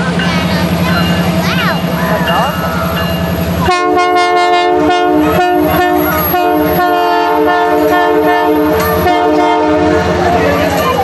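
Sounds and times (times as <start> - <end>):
locomotive engine rumble: 0.0 - 11.0
locomotive air horn blasts: 3.6 - 10.3.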